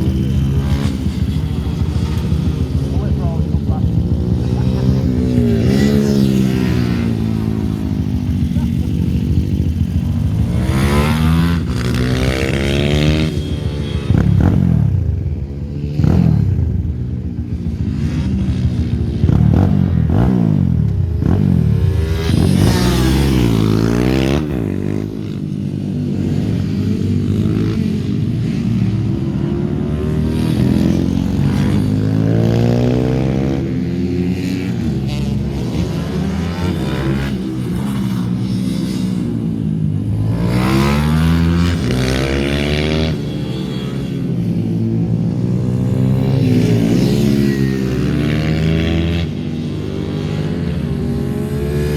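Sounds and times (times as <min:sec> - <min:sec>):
minibike engines revving: 0:00.0 - 0:15.0, 0:18.0 - 0:51.9.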